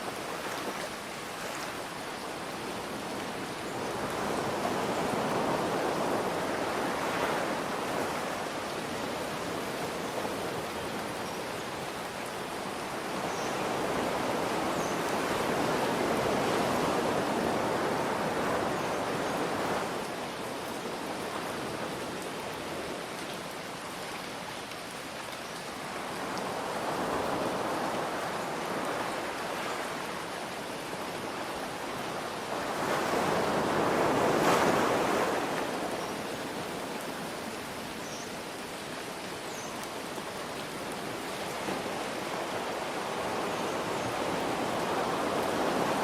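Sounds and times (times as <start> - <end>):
gentle rain hiss: 0.0 - 46.0
ocean waves washing in: 40.8 - 46.0.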